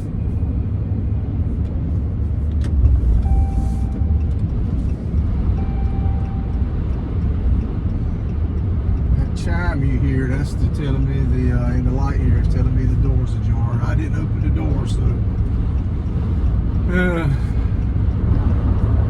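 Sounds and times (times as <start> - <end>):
road rumble inside cab: 0.0 - 19.0
door warning chime: 3.2 - 4.4, 5.6 - 6.7.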